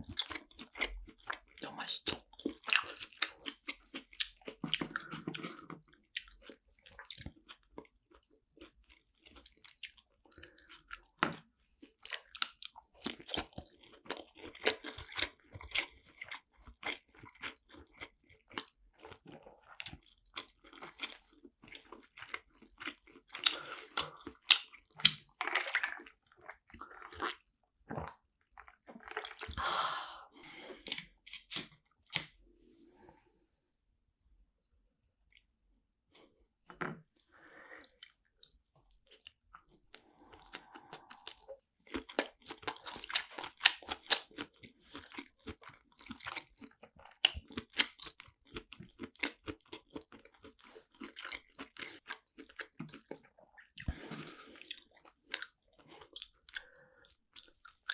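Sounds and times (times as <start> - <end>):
chewing and biting: 0.0 - 29.6, 37.8 - 57.9
wet mouth clicks: 42.1 - 44.3.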